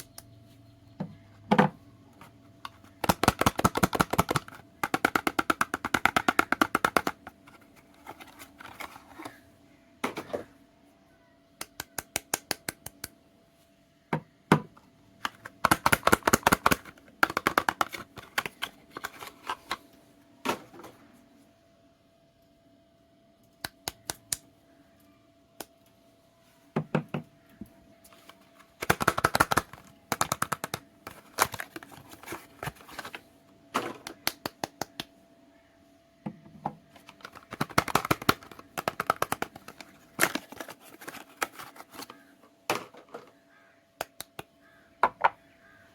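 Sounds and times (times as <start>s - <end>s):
soap crackling and clicking: 3.0s - 7.2s, 37.0s - 42.2s.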